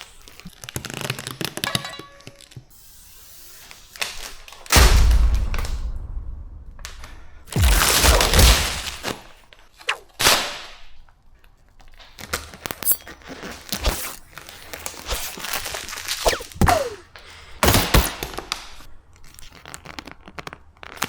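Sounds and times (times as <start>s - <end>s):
film rustling swish: 13.7s - 17.1s.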